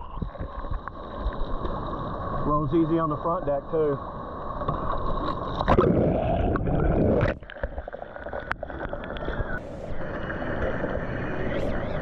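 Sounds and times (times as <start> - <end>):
water splashing around kayak: 0.0 - 12.0.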